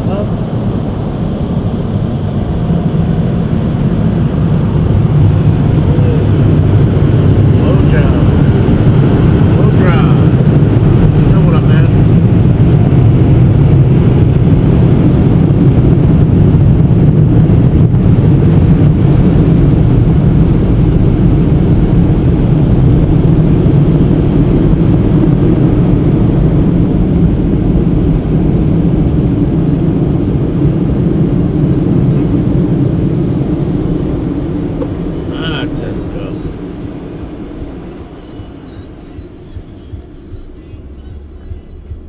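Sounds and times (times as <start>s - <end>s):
car interior low rumble: 0.0s - 42.0s.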